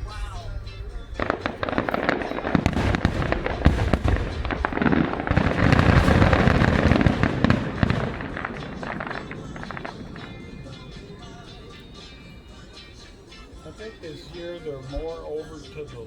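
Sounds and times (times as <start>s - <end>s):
fireworks bangs and crackles: 1.2s - 15.3s.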